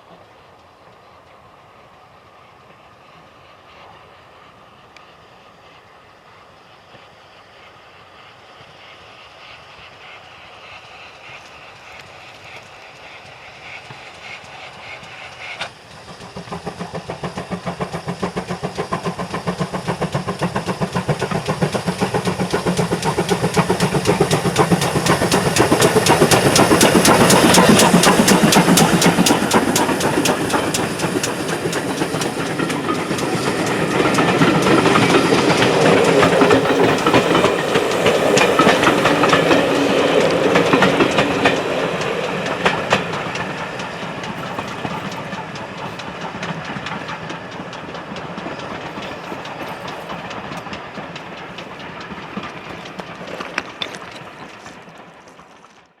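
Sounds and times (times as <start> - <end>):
steam train rhythmic beats: 11.3 - 53.3.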